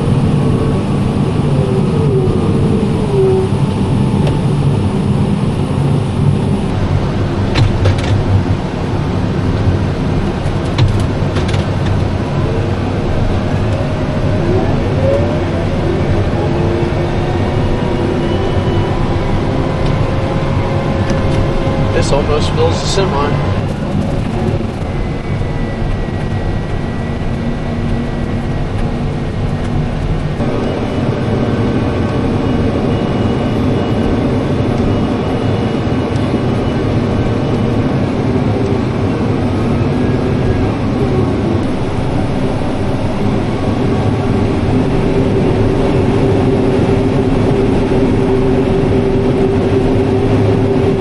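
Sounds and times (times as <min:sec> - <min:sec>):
engine droning: 0:00.0 - 0:51.0
steady machine tones: 0:12.2 - 0:51.0.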